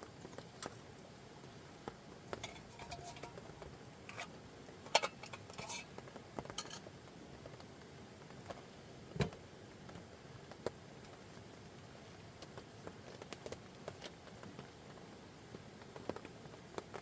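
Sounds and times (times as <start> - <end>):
faint hiss: 0.0 - 17.0
small objects clinking: 2.3 - 5.9, 6.5 - 6.9.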